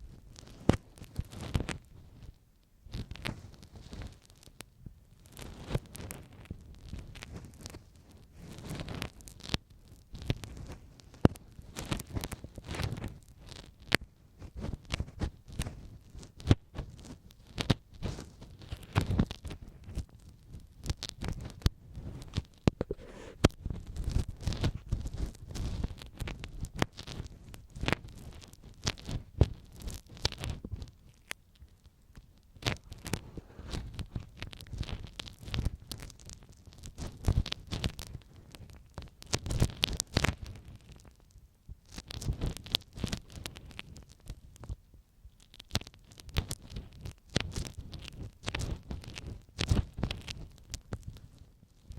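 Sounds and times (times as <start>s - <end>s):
ear pick scratching in ear: 21.1s - 30.9s.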